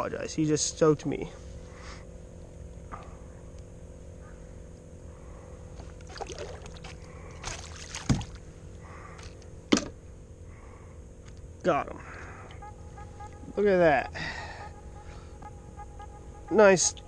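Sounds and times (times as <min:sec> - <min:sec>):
fish splashing and thrashing: 0:05.9 - 0:08.4.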